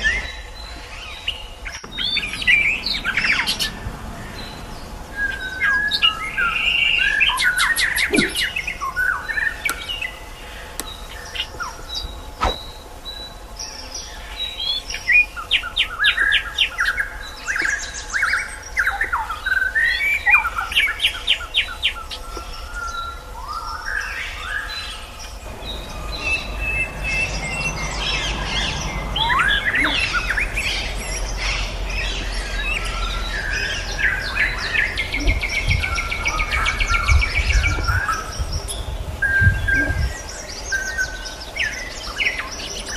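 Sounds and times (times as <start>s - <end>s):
steady low hum: 0.0s - 23.8s, 24.4s - 42.9s
songbirds singing: 0.0s - 42.9s.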